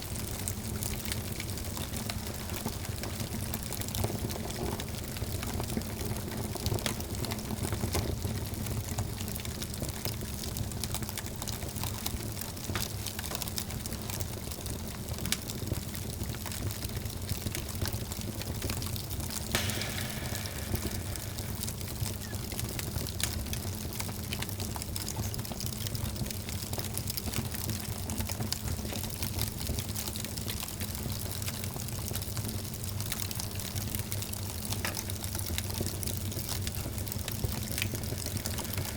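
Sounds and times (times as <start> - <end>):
wood fire crackling: 0.0 - 38.9
low fire rumble: 19.5 - 30.5, 32.1 - 38.9.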